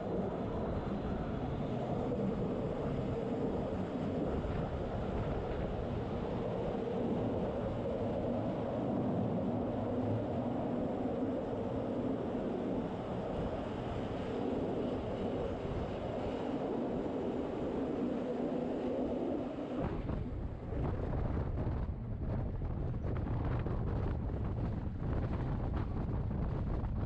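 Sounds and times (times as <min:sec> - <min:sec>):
rumble of train wheels on rails: 0:19.8 - 0:27.0.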